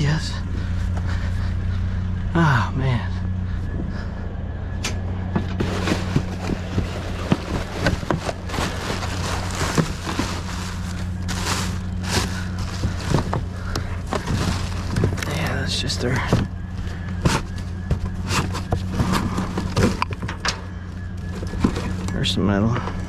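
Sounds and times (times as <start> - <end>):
steady low hum: 0.0 - 23.0
trash rustling: 4.9 - 23.0.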